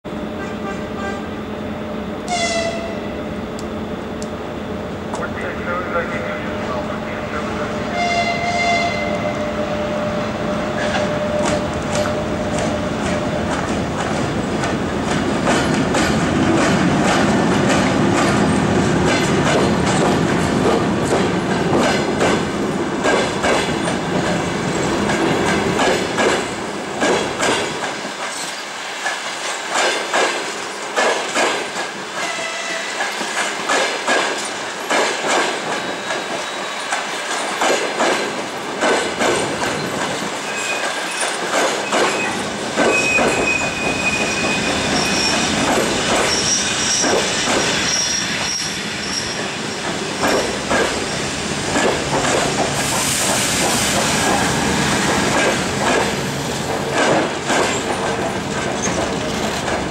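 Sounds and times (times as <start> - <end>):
wheels clacking over rail joints: 10.8 - 32.4, 33.0 - 48.6, 49.3 - 59.9
thin wheel squeal: 40.4 - 45.5, 46.2 - 47.1, 47.8 - 49.5.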